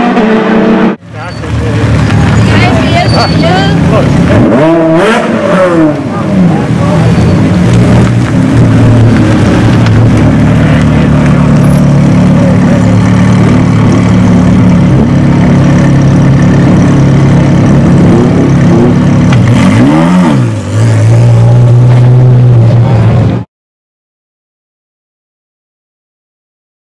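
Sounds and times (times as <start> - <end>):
car engine idling: 1.0 - 4.6, 5.4 - 23.3.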